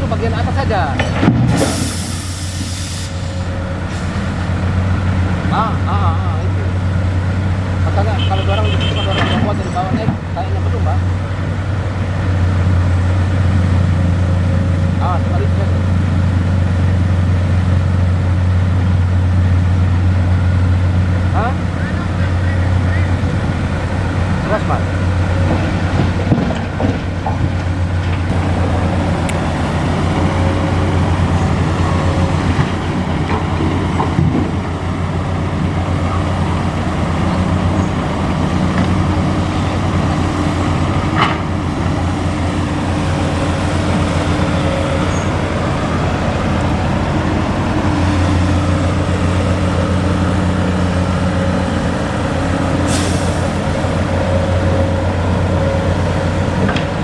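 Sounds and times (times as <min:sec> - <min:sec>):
diesel truck engine running: 0:00.0 - 0:57.0
short hiss: 0:01.6 - 0:03.4.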